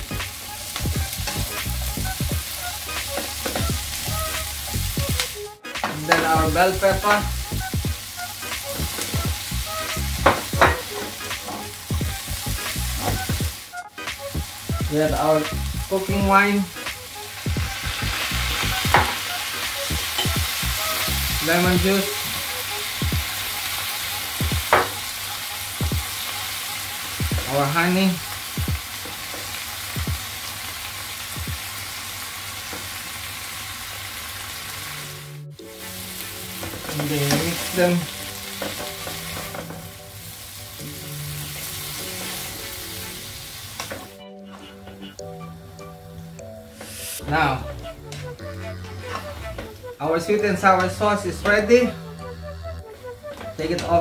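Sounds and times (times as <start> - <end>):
vegetables sizzling in a pan: 0.0 - 44.2
spatula scraping a pan: 48.8 - 49.4.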